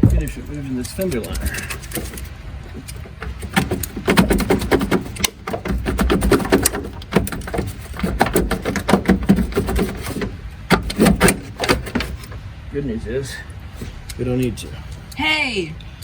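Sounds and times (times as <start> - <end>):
low steady rumble: 0.0 - 16.0
tools clicking and rattling: 0.2 - 12.4.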